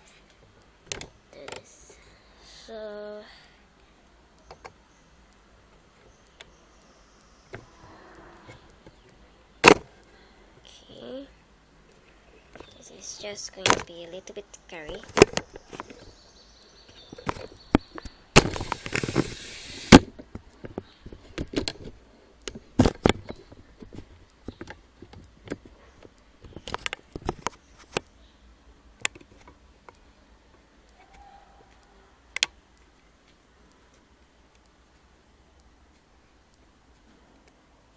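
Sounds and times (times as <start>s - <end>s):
sharp clicks and knocks: 0.3s - 1.7s, 8.5s - 10.0s, 13.6s - 16.2s, 16.9s - 28.1s, 29.0s - 31.8s.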